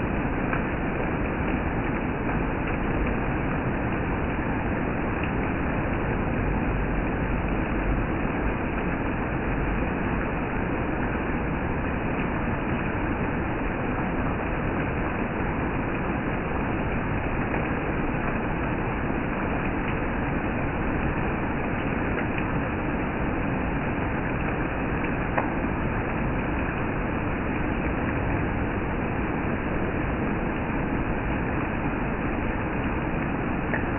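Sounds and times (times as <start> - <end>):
steady rain hissing: 0.0 - 33.9.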